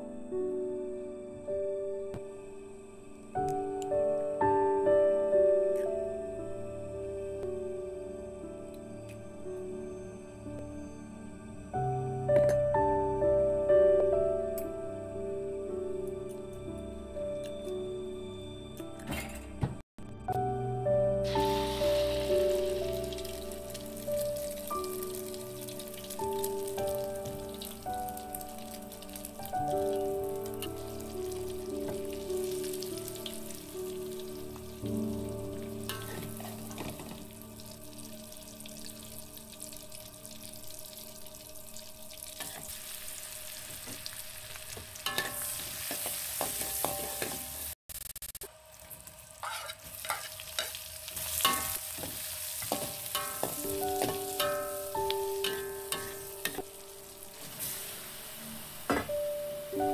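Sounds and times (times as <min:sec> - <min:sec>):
background music with held notes: 0:00.0 - 0:47.7, 0:50.0 - 0:59.9
food sizzling in hot oil: 0:21.2 - 0:59.9.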